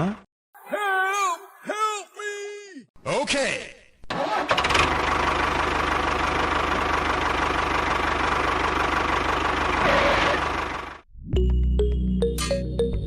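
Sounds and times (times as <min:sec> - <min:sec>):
tractor engine idling: 0:04.1 - 0:11.0.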